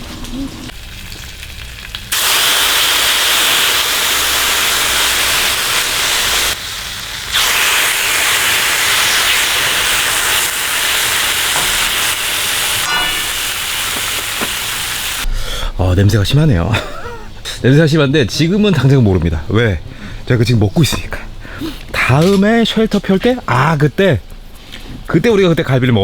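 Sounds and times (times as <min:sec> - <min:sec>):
meat sizzling on griddle: 0:00.7 - 0:15.3.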